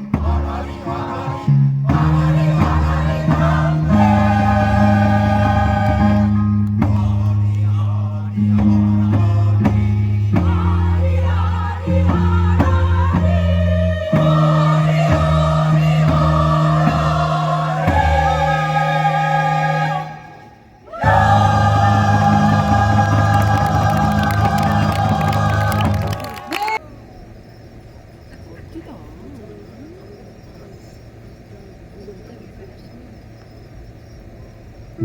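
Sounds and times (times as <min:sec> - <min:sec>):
instrumental accompaniment: 0:00.0 - 0:07.7, 0:08.3 - 0:26.5
choir singing: 0:00.0 - 0:26.8.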